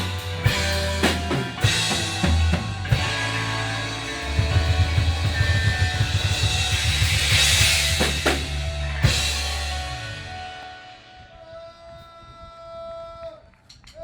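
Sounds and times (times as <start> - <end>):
rapid drum fill: 0.0 - 10.2
cymbal crash: 0.0 - 11.2
held bass and guitar chord: 0.0 - 11.3.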